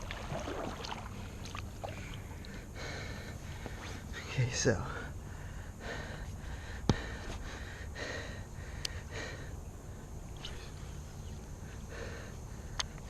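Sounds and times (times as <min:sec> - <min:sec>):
person breathing hard: 0:01.9 - 0:04.1, 0:04.9 - 0:10.2, 0:11.6 - 0:13.0.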